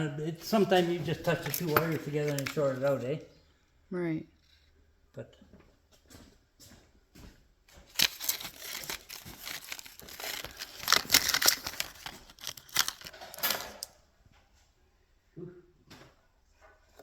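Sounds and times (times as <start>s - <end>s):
rustling and crackling handling noise: 0.4s - 3.2s, 7.8s - 14.0s.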